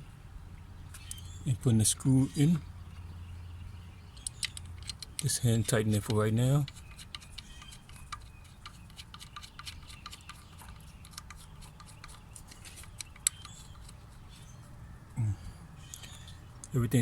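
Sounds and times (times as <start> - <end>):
small metal parts clicking: 4.2 - 14.1.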